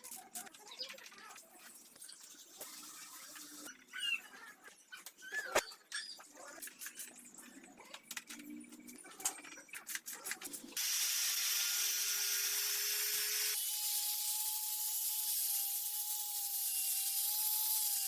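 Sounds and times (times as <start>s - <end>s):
small power tool whining: 10.8s - 18.0s.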